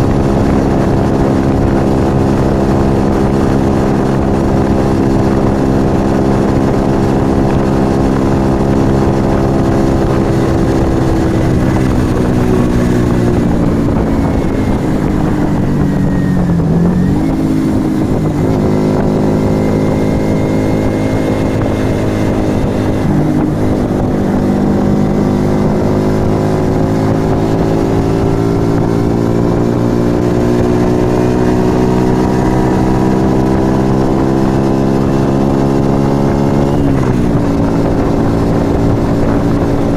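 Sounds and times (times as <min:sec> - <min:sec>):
low wind rumble: 0:00.0 - 0:39.9
motorcycle engine while riding: 0:00.0 - 0:39.9.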